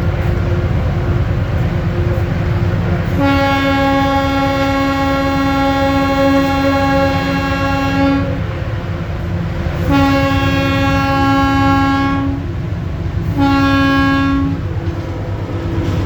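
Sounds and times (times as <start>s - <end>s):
train rumbling: 0.0s - 16.0s
locomotive horn blasts: 3.0s - 8.5s, 9.8s - 12.5s, 13.2s - 14.7s.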